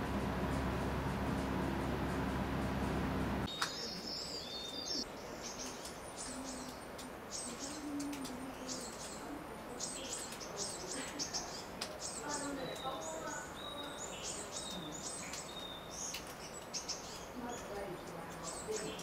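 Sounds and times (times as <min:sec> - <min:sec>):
steady low hum: 0:00.0 - 0:03.5
songbirds chirping: 0:00.0 - 0:19.0.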